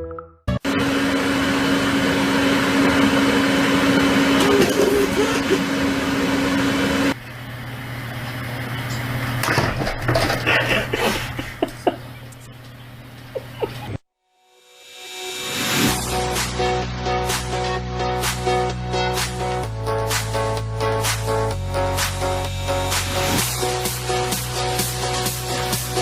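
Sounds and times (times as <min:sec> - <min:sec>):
loud machine hum: 0:00.6 - 0:09.5, 0:21.6 - 0:26.0.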